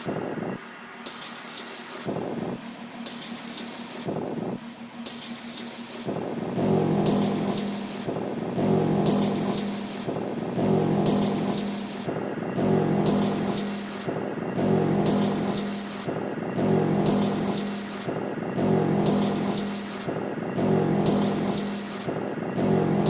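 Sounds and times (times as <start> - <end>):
low pitched hum: 6.5 - 23.0.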